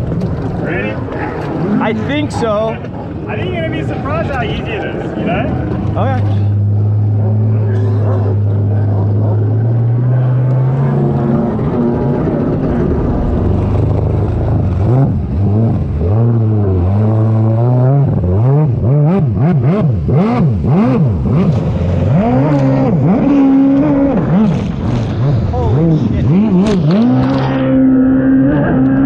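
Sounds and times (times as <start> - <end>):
jet ski engine revving: 0.0 - 29.0.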